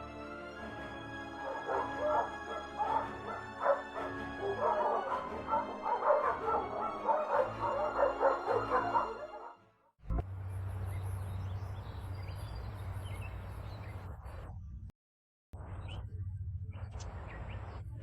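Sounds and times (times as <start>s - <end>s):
background music: 0.0s - 9.8s
dogs barking and yelping: 1.3s - 9.5s.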